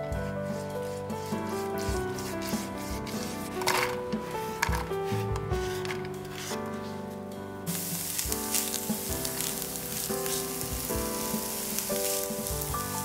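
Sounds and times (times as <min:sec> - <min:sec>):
background music: 0:00.0 - 0:13.0
spatula stirring in a pan: 0:00.5 - 0:04.8, 0:07.7 - 0:13.0
onion and garlic sizzling: 0:01.2 - 0:06.6, 0:07.7 - 0:13.0.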